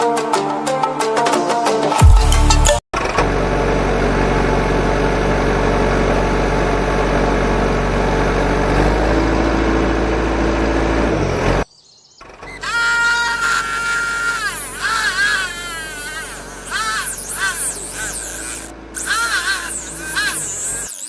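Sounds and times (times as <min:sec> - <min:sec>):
motor humming: 0:12.2 - 0:21.0.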